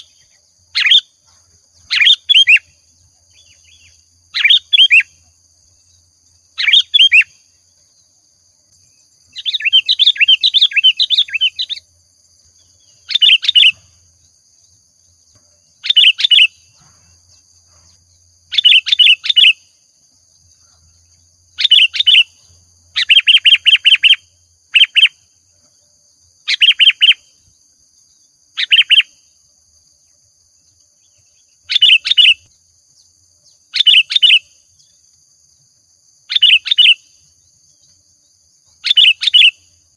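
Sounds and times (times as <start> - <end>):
bird singing short phrases: 0.0 - 1.2, 1.8 - 8.1, 8.8 - 11.9, 12.6 - 14.0, 15.7 - 19.7, 20.6 - 25.3, 26.5 - 27.4, 28.1 - 29.2, 31.0 - 35.0, 36.3 - 37.9, 38.7 - 39.7.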